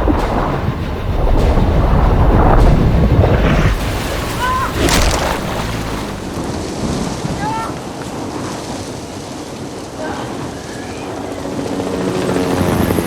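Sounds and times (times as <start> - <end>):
heavy rain downpour: 3.8 - 12.0.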